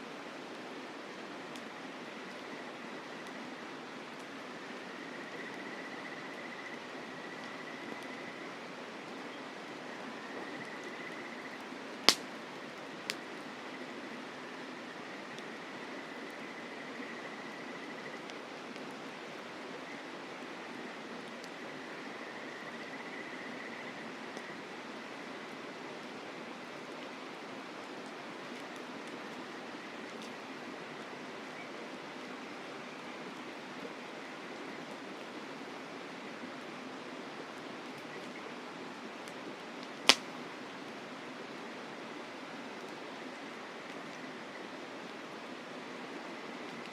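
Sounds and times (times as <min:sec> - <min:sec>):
faint campfire crackles: 0:00.0 - 0:46.9
sharp pop of burning wood: 0:12.1 - 0:12.3, 0:40.0 - 0:40.3.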